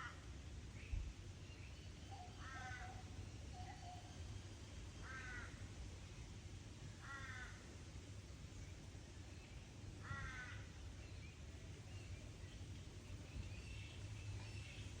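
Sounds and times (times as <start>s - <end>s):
crow cawing: 7.0s - 7.6s, 10.0s - 10.7s.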